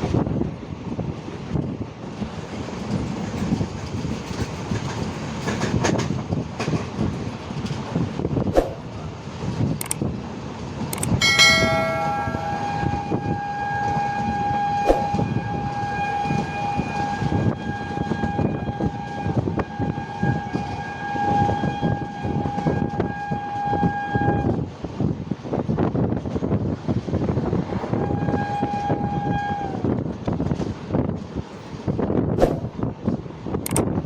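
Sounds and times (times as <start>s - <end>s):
moving train rumble and clatter: 0.0s - 34.0s
train horn blast: 11.2s - 24.6s, 27.8s - 30.0s.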